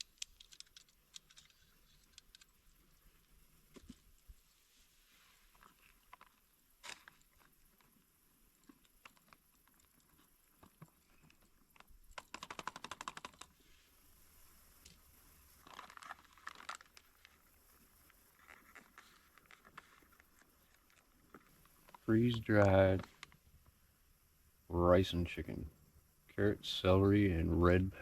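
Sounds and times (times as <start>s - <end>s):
crinkling clicks: 0.0s - 4.3s, 8.6s - 13.6s, 14.8s - 23.4s
handling clicks and rustles: 0.0s - 4.3s, 14.8s - 23.4s.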